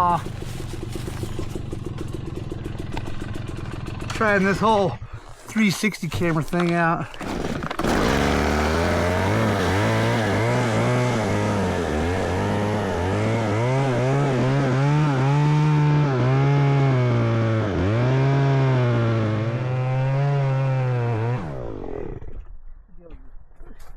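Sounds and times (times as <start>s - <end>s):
chainsaw cutting wood: 7.1s - 22.3s.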